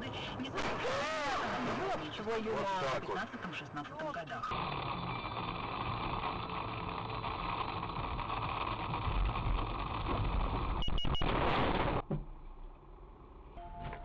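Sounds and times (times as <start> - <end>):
car road and engine noise: 0.0 - 14.0
short high electronic beeps: 10.8 - 11.3.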